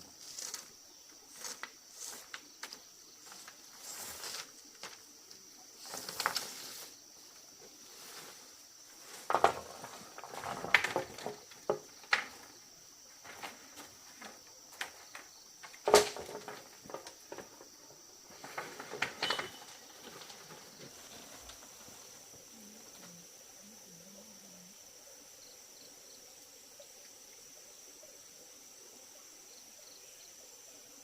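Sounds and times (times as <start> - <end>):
knocks and clatters of hand work: 9.2 - 12.5, 13.2 - 21.7.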